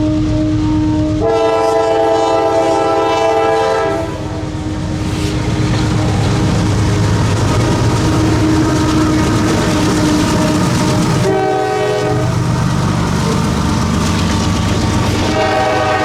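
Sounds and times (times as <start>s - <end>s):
locomotive air horn chord: 0.0s - 5.4s, 7.6s - 12.5s, 15.0s - 16.0s
lower single-note horn: 0.0s - 5.4s, 11.1s - 12.4s, 15.2s - 16.0s
freight train rumble and clatter: 0.0s - 16.0s.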